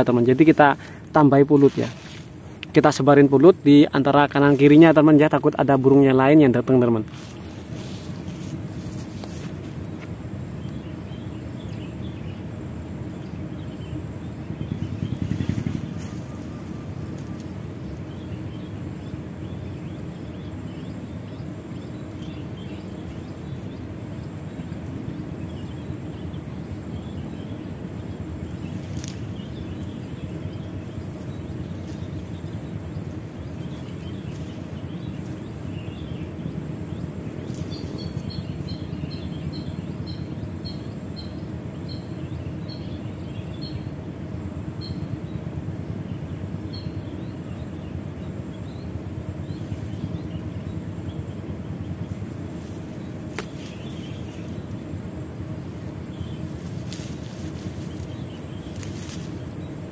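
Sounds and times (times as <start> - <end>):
faint bird chirps: 0.0 - 59.9
low background rumble: 0.0 - 59.9
bird pips: 14.5 - 18.8, 52.0 - 54.9.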